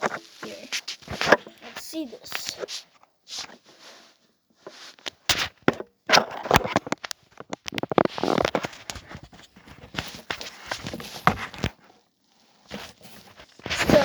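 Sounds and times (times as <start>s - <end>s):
package crackling and tearing: 6.4s - 9.0s.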